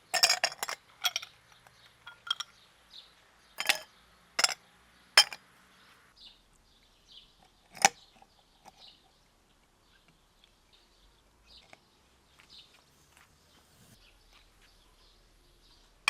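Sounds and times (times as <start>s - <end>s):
sharp clink: 5.2s - 5.4s.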